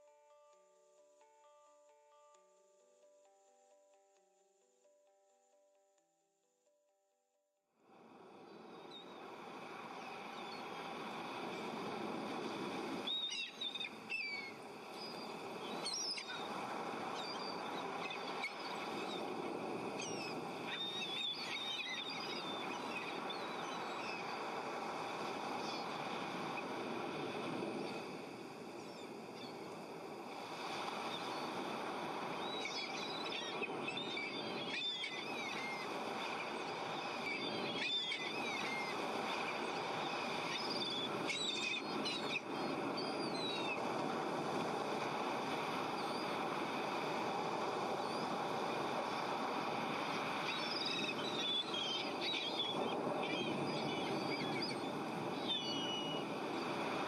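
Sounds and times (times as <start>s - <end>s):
birds chirping: 13.0s - 26.8s, 32.2s - 43.9s, 49.3s - 57.0s.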